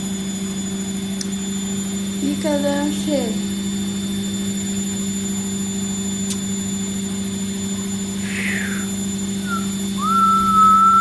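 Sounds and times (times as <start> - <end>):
high whistle-like tone: 8.2 - 11.0.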